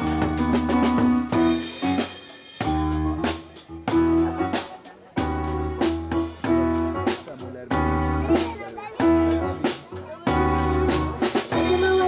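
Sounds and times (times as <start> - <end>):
live band playing instrumental pop: 0.0 - 12.0.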